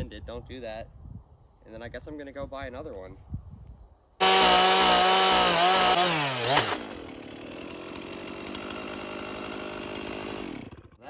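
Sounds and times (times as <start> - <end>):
chainsaw cutting log: 4.2 - 11.0
chainsaw idling: 4.2 - 11.0.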